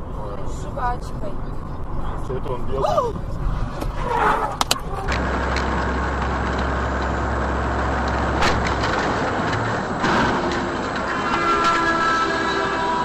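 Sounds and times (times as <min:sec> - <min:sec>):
vehicle road and engine noise: 0:00.0 - 0:13.0.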